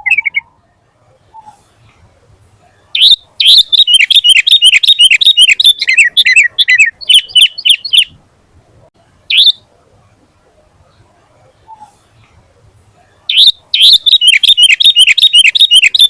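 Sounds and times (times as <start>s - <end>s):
bulbul singing chattering notes: 3.0s - 8.2s, 13.3s - 16.0s.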